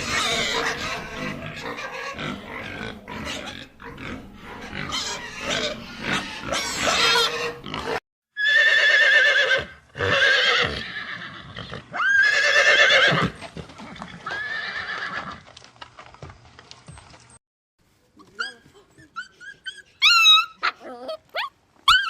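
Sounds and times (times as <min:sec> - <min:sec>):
horse whinnying: 0:08.4 - 0:15.4.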